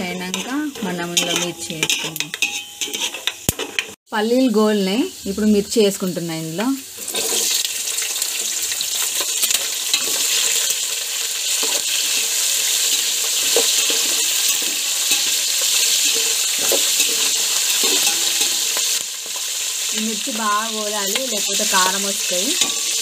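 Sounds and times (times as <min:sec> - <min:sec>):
steel spatula scraping a pot: 0:00.0 - 0:04.0, 0:07.0 - 0:07.7, 0:11.4 - 0:20.0, 0:21.1 - 0:23.0
chillies sizzling in hot oil: 0:00.0 - 0:23.0.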